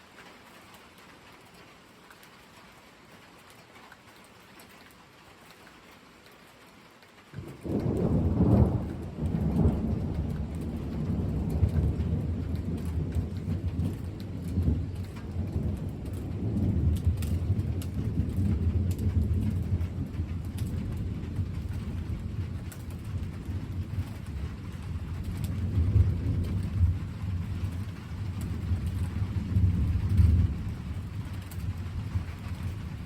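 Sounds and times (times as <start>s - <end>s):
steady rain: 0.0s - 33.0s
thunder rumbling: 7.4s - 33.0s.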